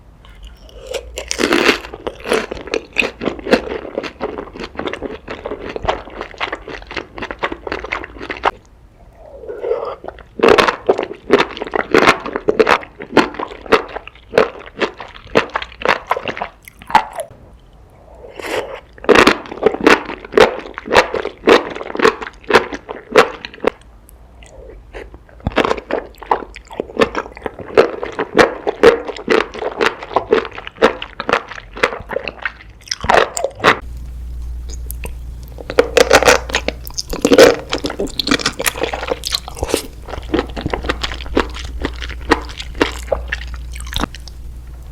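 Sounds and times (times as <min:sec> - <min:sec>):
crunchy chewing: 0:00.2 - 0:08.6, 0:18.4 - 0:44.9.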